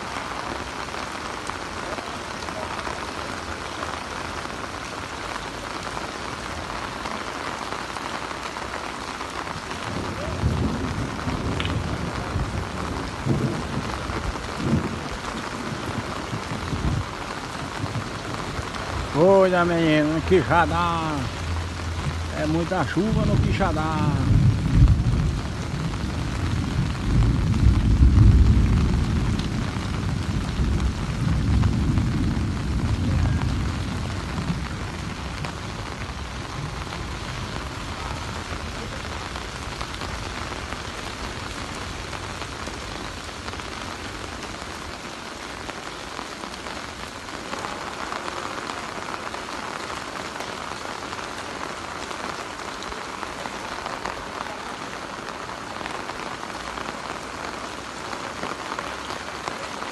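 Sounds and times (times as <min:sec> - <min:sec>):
heavy rain: 0:00.0 - 0:59.9
rolling thunder: 0:09.8 - 0:19.2, 0:20.2 - 0:40.8.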